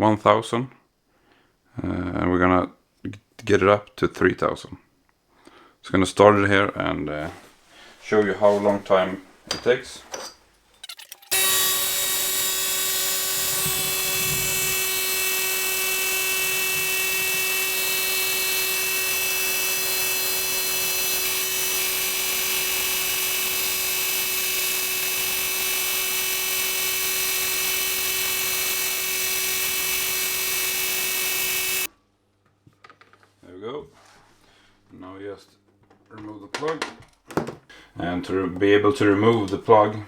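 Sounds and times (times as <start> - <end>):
air compressor humming with whine: 11.3 - 31.9.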